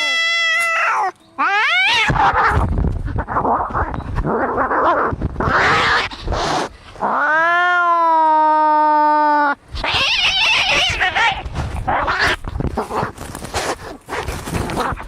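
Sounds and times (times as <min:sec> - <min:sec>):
cat yowling: 0:00.0 - 0:02.6, 0:07.1 - 0:11.4
cats hissing: 0:00.0 - 0:07.4, 0:09.7 - 0:15.0.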